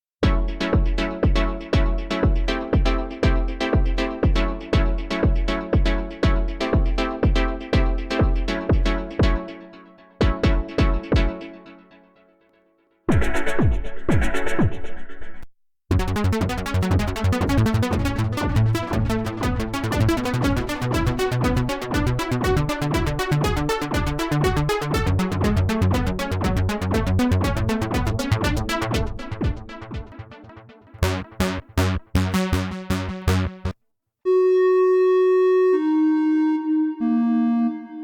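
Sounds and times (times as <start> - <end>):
synth bass line: 0.2 - 9.5, 15.9 - 35.4
synth sequenced note pattern: 0.2 - 11.9, 15.9 - 34.9
synth held notes: 31.0 - 33.7.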